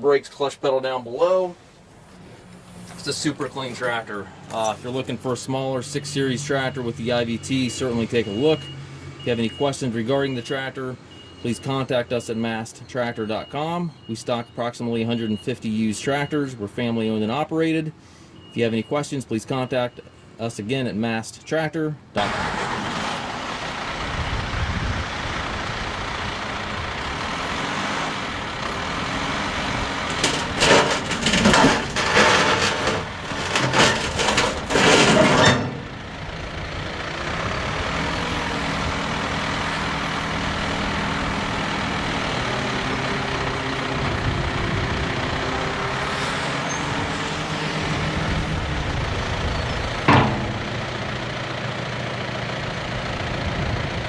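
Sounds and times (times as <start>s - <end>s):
diesel tractor engine running: 22.2s - 54.0s.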